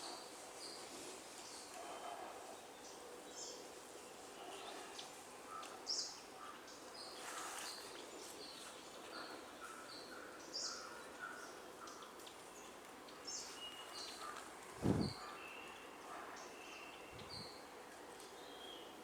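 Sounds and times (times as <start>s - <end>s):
lower bird notes: 14.8s - 15.3s
birds chirping: 14.8s - 15.8s.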